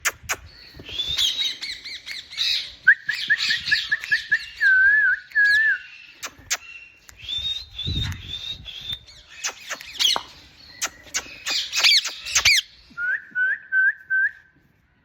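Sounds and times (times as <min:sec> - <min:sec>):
parrot chirps and squawks: 0:09.3 - 0:12.7.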